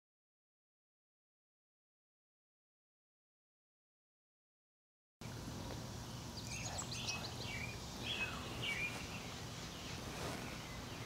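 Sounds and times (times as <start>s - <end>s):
birds chirping: 5.2s - 11.0s
low steady hum: 5.2s - 11.0s.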